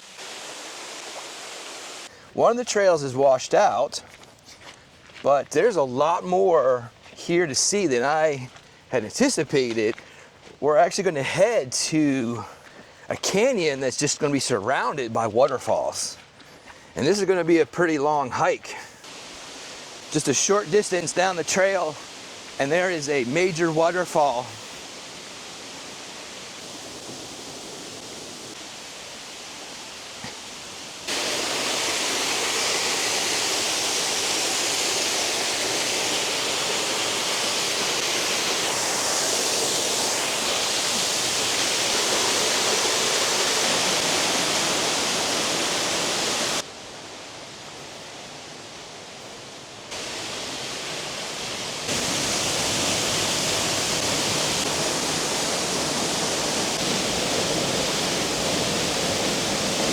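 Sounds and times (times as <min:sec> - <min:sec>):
waterfall rushing water: 0:00.0 - 0:03.9, 0:17.0 - 0:59.9.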